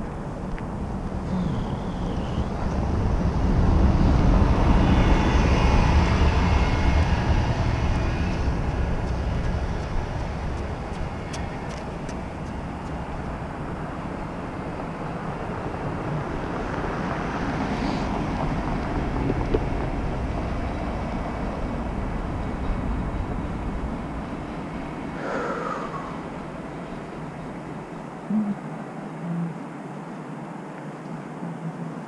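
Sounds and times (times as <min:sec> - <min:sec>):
vehicle rumble with road noise: 0:00.0 - 0:32.0
wavering higher tone: 0:28.3 - 0:29.6.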